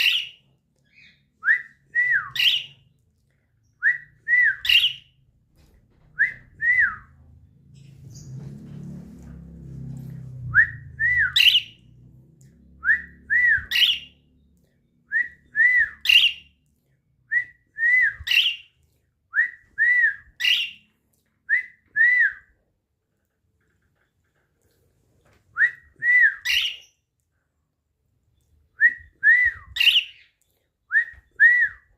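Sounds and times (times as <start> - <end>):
faint low rumble: 5.2 - 15.5
budgerigar whistles and chirps: 13.5 - 14.1, 26.4 - 26.9, 29.7 - 30.3.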